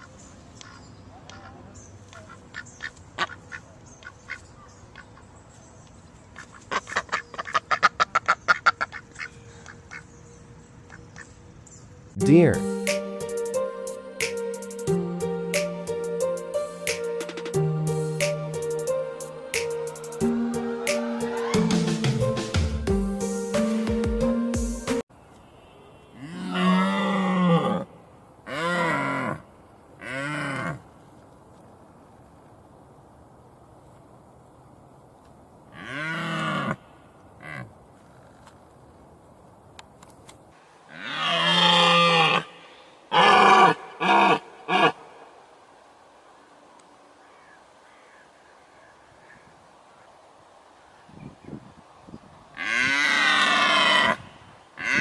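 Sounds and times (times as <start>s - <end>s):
ducks quacking: 0.0s - 5.2s, 6.4s - 10.0s
large animal deep lowing calls: 26.2s - 27.9s, 40.9s - 45.2s.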